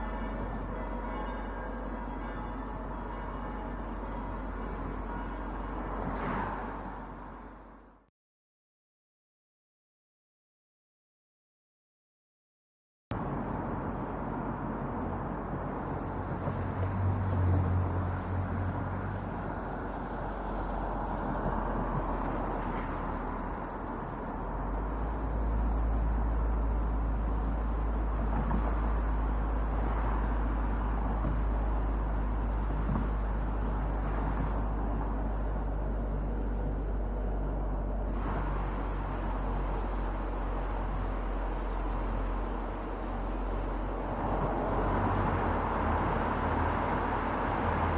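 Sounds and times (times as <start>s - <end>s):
tyre rumble on road: 25.6s - 47.9s.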